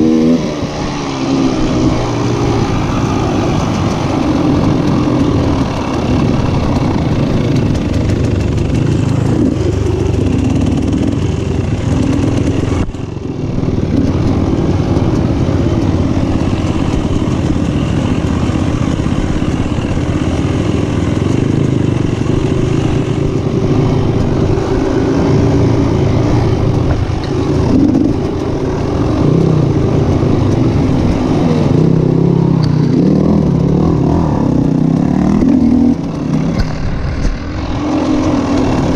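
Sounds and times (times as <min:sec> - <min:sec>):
motorcycle engines revving: 0:00.0 - 0:38.9.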